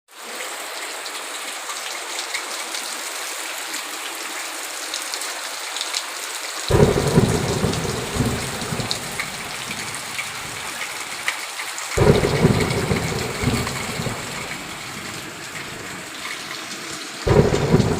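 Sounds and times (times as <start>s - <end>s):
heavy rain hissing: 6.6s - 17.9s
thunder clap rumbling: 6.7s - 11.2s, 12.0s - 16.5s, 17.3s - 17.9s.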